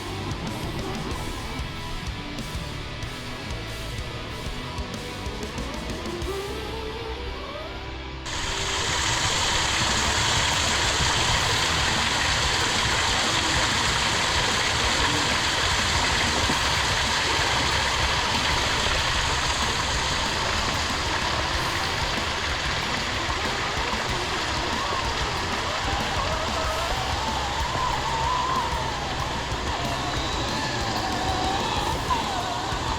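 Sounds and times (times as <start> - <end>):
music: 0.0 - 32.9
steady loud rushing noise: 8.2 - 32.9.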